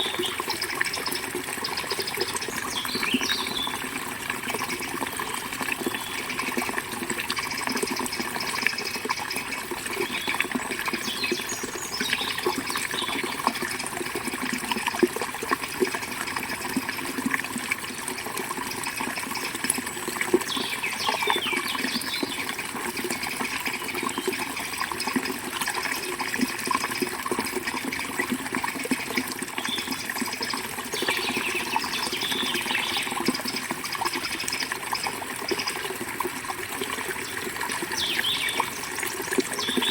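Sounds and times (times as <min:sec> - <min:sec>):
bird chirps: 0:38.0 - 0:38.8.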